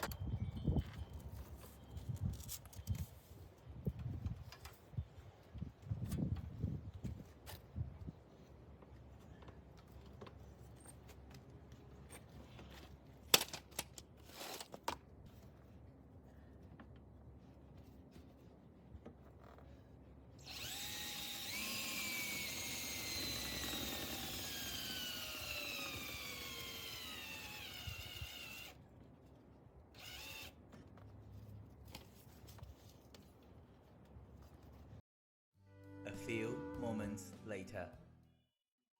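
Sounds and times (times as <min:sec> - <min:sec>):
electric drill whining: 0:20.4 - 0:28.8, 0:30.0 - 0:30.5.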